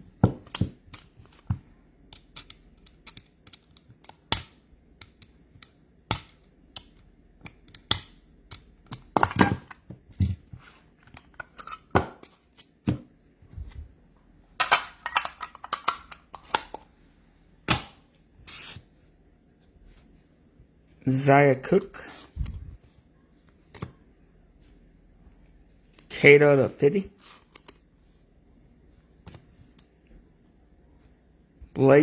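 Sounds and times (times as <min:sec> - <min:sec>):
cards clicking and tapping: 0:00.2 - 0:10.3.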